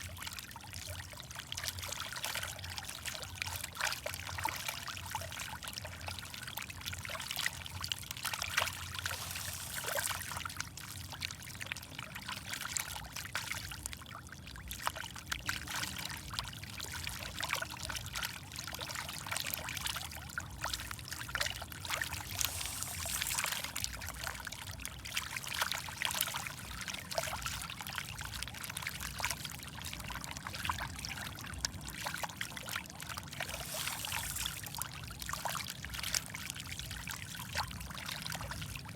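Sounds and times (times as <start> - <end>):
fish feeding splashes at surface: 7.6 - 11.1, 20.7 - 26.6, 32.4 - 36.1.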